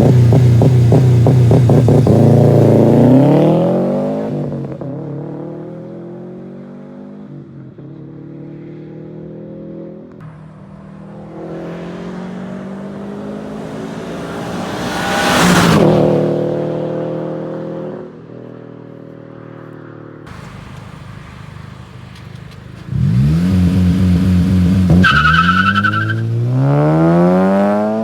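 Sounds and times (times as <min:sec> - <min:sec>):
loud exhaust revving: 0:00.0 - 0:04.3, 0:20.3 - 0:28.0
car driving past: 0:10.2 - 0:17.0, 0:20.3 - 0:28.0.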